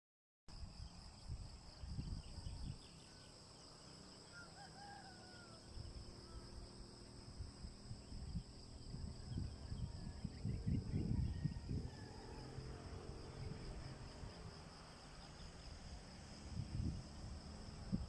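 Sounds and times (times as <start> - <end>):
wind on microphone: 0.6 - 2.9, 7.2 - 14.7, 15.7 - 18.0
insects droning: 0.6 - 18.0
rooster crowing faintly: 4.2 - 6.7.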